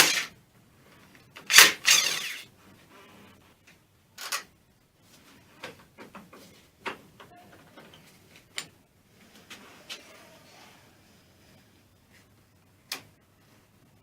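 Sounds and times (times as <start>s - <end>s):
tools clicking and knocking: 0.0s - 0.3s, 1.4s - 2.4s.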